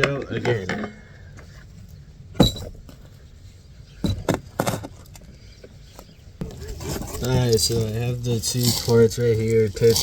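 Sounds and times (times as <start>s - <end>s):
low steady background hum: 0.0s - 10.0s.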